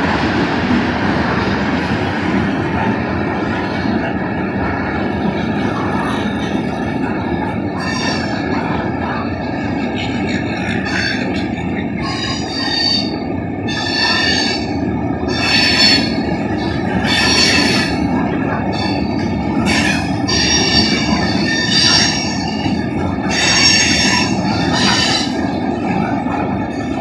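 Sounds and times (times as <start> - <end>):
hopper cars rolling rumble: 0.0 - 27.0
metal wheel squeals: 19.7 - 25.4.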